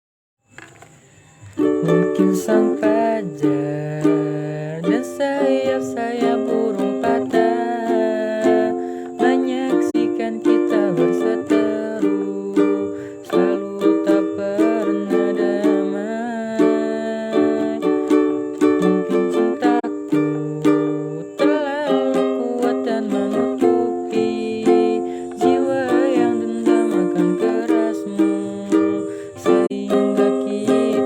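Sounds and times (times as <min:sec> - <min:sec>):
person singing: 0:01.4 - 0:31.0
ukulele playing: 0:01.5 - 0:31.0.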